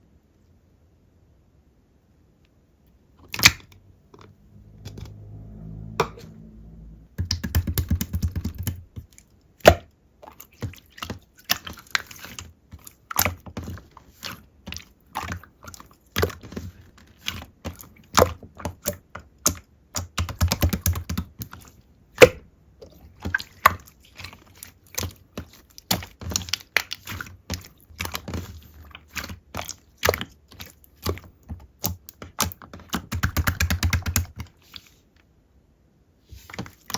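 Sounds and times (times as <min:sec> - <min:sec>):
low rumbling squish: 0:21.0 - 0:33.0.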